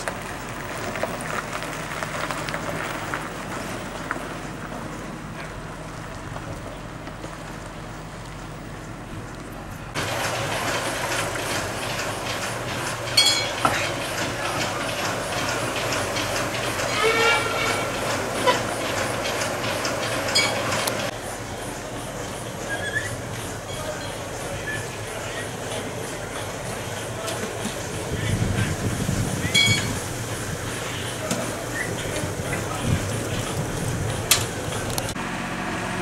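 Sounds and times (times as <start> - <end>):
wheels ticking over rails: 0.0 - 35.2
diesel locomotive moving slowly: 0.0 - 36.0
rail yard background: 0.0 - 36.0
metallic squeals: 16.8 - 20.8, 21.7 - 25.6, 29.4 - 30.1.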